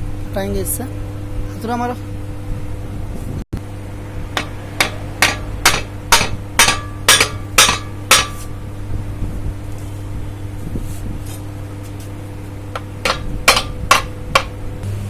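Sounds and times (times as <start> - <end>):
steady low hum: 0.0 - 15.0
hammer striking metal: 4.4 - 8.6, 12.8 - 15.0.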